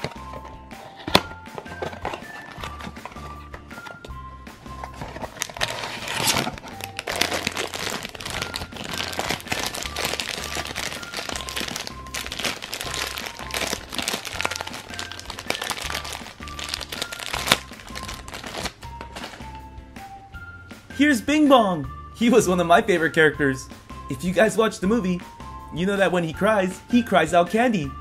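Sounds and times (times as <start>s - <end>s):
plastic wrapper crinkling: 4.9s - 19.4s.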